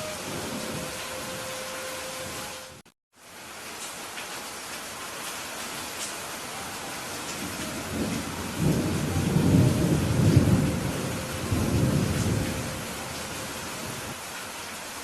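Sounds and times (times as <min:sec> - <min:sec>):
steady rain: 0:00.0 - 0:15.0
rolling thunder: 0:07.4 - 0:14.2.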